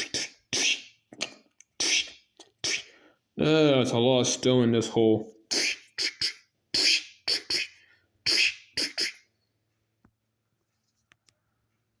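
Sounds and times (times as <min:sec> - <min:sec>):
mouth-made hissing bursts: 0:00.0 - 0:00.9, 0:01.8 - 0:03.0, 0:05.5 - 0:09.3.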